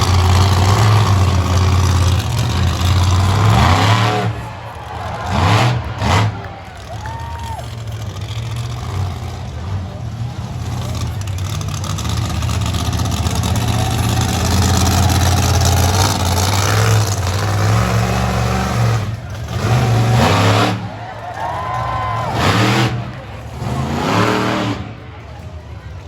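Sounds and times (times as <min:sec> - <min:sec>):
truck engine revving: 0:00.0 - 0:26.0.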